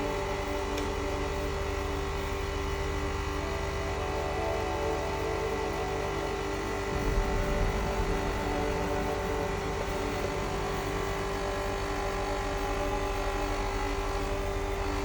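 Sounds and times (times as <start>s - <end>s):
generator machine hum with whine: 0.0s - 15.0s
low rumble: 6.8s - 14.9s.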